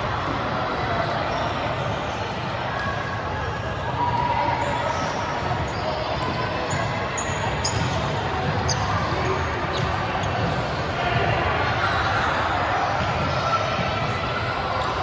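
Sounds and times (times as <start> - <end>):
shoes squeaking on court floor: 4.7 - 10.8.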